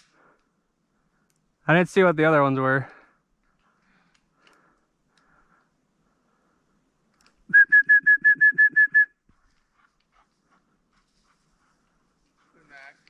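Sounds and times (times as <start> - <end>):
dog whistle toots: 7.5 - 9.1.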